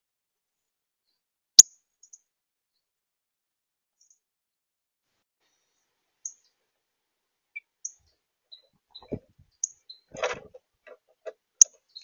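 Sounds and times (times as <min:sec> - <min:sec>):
brief rustle: 0:10.1 - 0:11.8.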